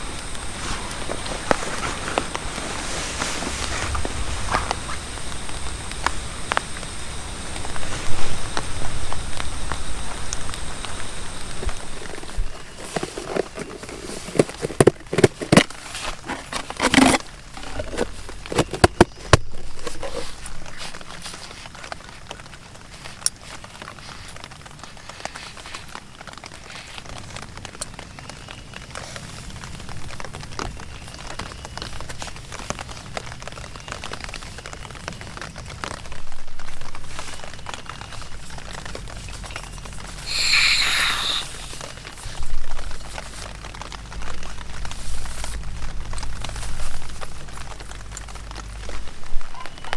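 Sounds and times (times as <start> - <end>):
objects clicking and crinkling: 0.0 - 49.9
rain pattering: 0.0 - 49.9
short hissing rush: 40.2 - 42.0.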